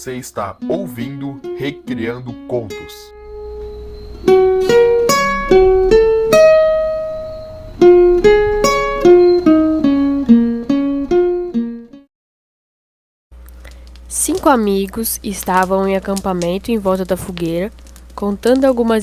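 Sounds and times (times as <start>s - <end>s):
plucked-string melody: 0.6s - 12.0s.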